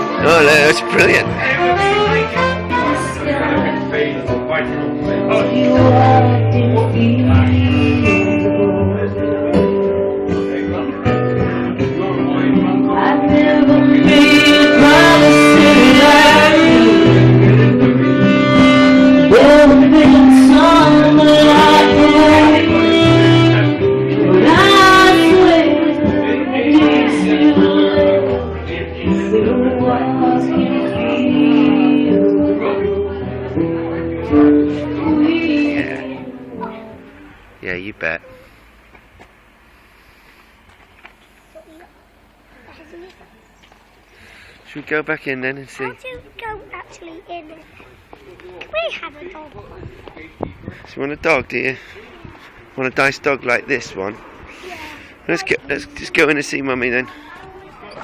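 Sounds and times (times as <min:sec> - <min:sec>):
steady bass line: 0:00.0 - 0:38.0
guitar: 0:00.0 - 0:39.8, 0:40.5 - 0:58.0
person singing lead: 0:05.2 - 0:09.5.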